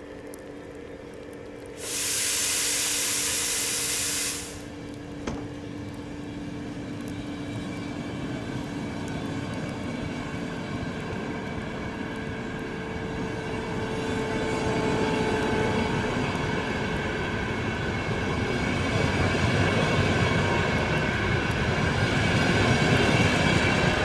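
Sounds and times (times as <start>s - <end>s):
electric train hum: 0.0s - 24.0s
wheels rumbling on rail: 0.0s - 24.0s
released air hissing: 1.8s - 4.7s.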